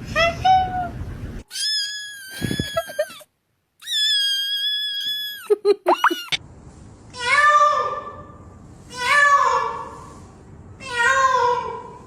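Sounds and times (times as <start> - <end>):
cat crying: 1.5 - 6.4.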